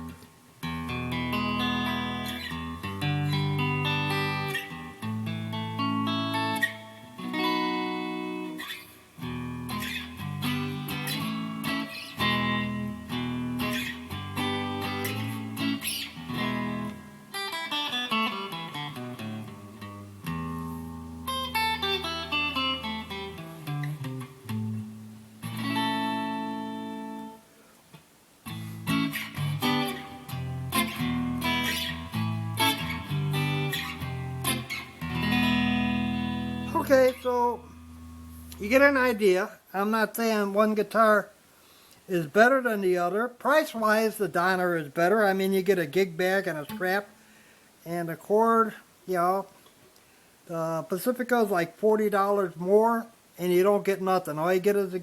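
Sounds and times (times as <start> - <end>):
electric guitar playing: 0.0 - 27.5, 28.4 - 39.4, 45.4 - 47.2.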